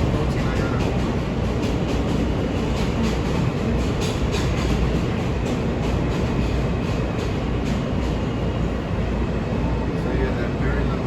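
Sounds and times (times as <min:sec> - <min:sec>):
subway train rumble: 0:00.0 - 0:11.0.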